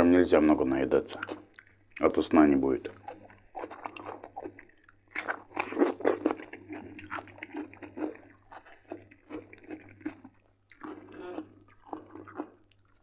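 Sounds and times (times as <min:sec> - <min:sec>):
close chewing: 0:01.1 - 0:13.0
crunchy bite into cucumber: 0:05.1 - 0:13.0.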